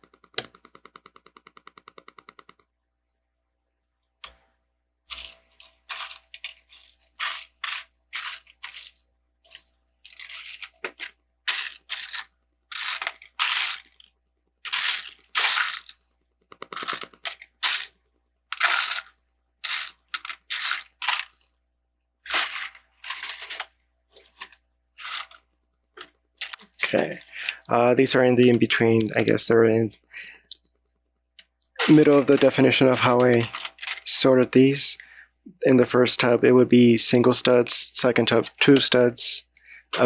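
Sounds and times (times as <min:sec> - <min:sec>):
plastic toy bricks rattling in tub: 0:05.1 - 0:14.1, 0:14.7 - 0:16.0, 0:16.6 - 0:21.5, 0:22.3 - 0:27.6, 0:31.6 - 0:34.3.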